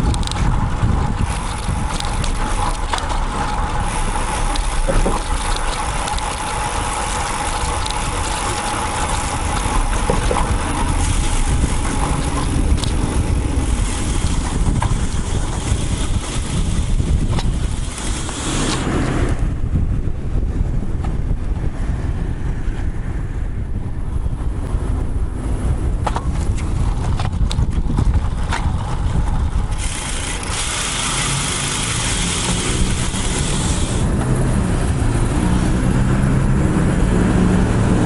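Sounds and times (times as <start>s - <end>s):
light clicks and rattles: 0.0s - 13.1s
bicycle rolling on road: 0.0s - 38.0s
motor traffic: 0.0s - 38.0s
wind on microphone: 0.0s - 38.0s.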